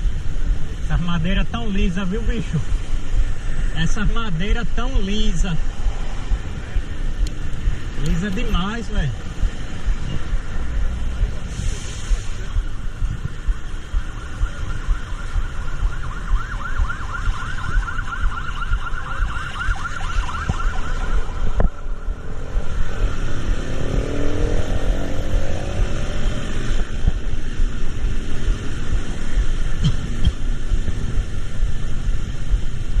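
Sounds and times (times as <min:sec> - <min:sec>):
road traffic rumble: 0:00.0 - 0:33.0
siren yelping: 0:13.9 - 0:22.4
vehicle accelerating: 0:19.6 - 0:33.0.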